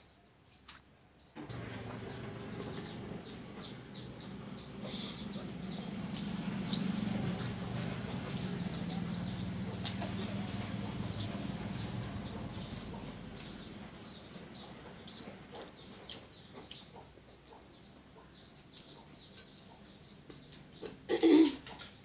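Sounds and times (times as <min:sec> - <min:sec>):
birds chirping: 0:00.0 - 0:22.0
steady low hum: 0:01.4 - 0:17.6.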